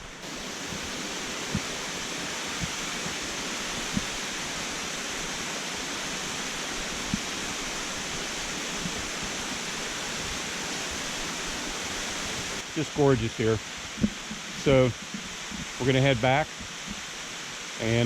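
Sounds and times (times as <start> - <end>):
waterfall roaring: 0.0 - 18.0
soft low thumps: 13.8 - 15.8.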